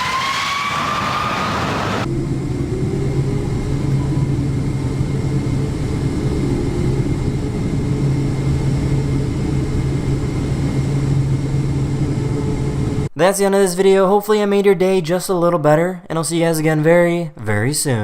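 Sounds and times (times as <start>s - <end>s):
jet engine whine: 0.0s - 13.1s
low engine drone: 0.0s - 13.1s.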